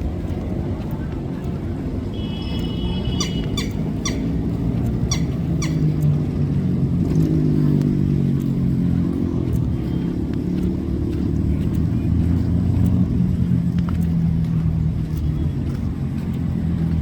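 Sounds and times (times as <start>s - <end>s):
engine running low: 0.0s - 17.0s
quick sharp bird calls: 3.1s - 4.3s, 5.1s - 5.9s.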